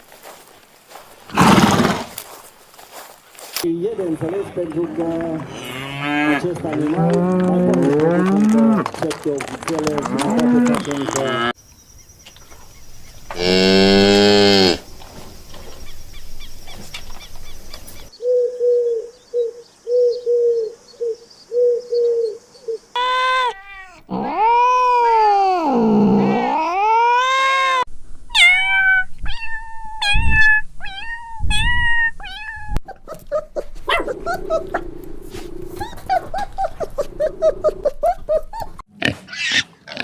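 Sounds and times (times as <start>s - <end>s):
cats meowing and yowling: 23.0s - 33.0s.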